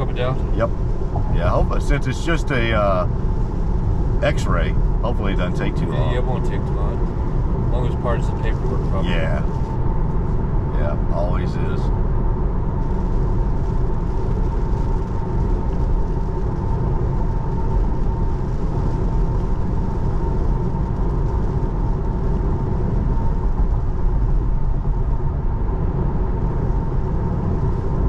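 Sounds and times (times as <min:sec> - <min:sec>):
faint steady hum: 0:00.0 - 0:28.0
road and tyre noise: 0:00.0 - 0:28.0.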